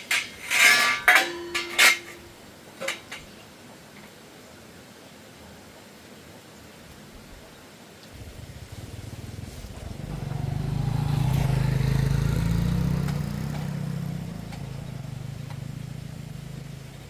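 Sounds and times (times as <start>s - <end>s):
motor engine humming: 8.1s - 17.0s.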